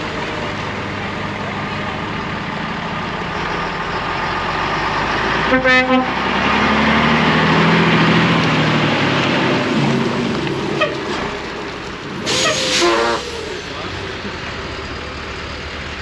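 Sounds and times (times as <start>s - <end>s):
diesel truck engine: 0.0s - 16.0s
trucks driving past: 0.0s - 16.0s
lorry horn blast: 12.3s - 13.6s.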